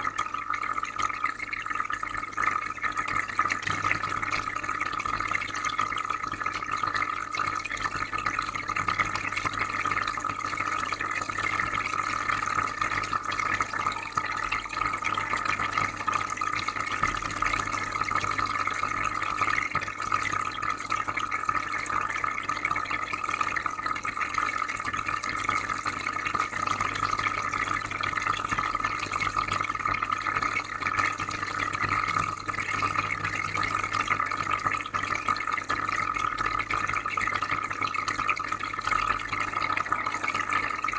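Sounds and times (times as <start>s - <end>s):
aquarium water bubbling: 0.0s - 40.9s
filter humming: 27.3s - 37.1s.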